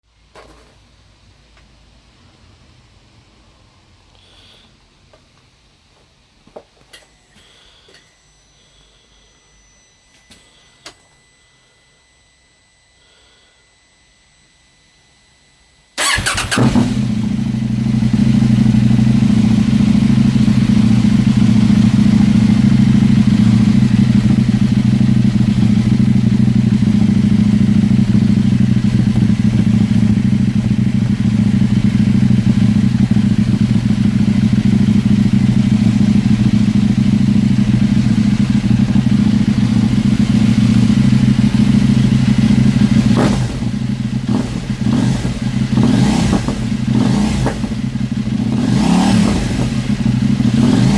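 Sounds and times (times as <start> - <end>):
motorcycle engine idling: 16.0 - 50.9.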